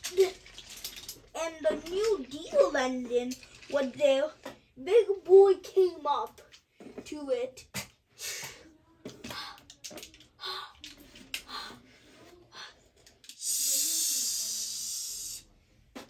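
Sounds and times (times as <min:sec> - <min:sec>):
child hissing shhh: 0:08.2 - 0:08.7, 0:13.4 - 0:15.5
child making breathy puffs: 0:13.4 - 0:15.4.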